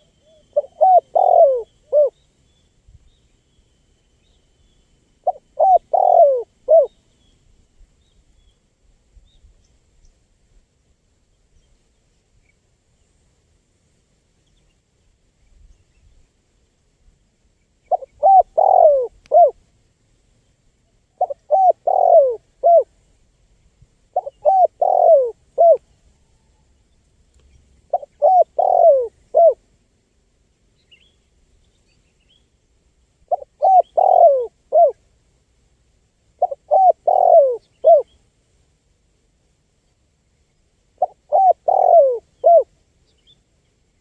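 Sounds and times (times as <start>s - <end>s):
dove cooing: 0.0s - 2.2s, 5.2s - 6.9s, 17.9s - 19.6s, 21.2s - 22.9s, 24.1s - 25.8s, 27.9s - 29.6s, 33.3s - 35.0s, 36.4s - 38.1s, 41.0s - 42.7s.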